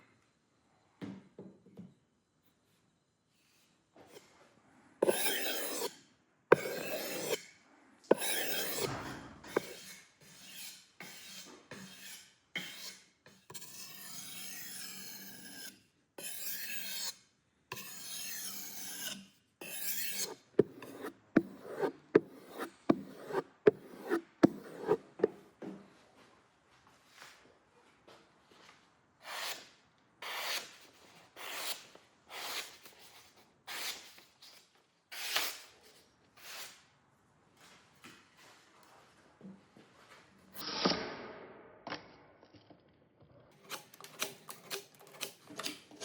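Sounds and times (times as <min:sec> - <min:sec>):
blade rasping over hard surface: 0:05.0 - 0:07.5, 0:08.1 - 0:25.4, 0:43.5 - 0:46.0.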